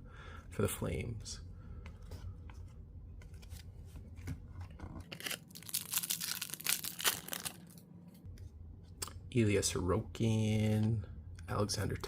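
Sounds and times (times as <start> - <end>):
wrapper tearing and crinkling: 5.0 - 7.8.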